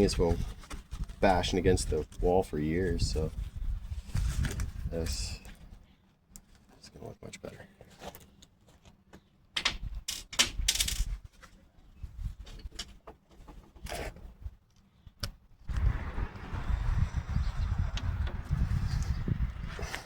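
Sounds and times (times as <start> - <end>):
rustling handling rumble: 0.0 - 5.8, 15.7 - 20.0.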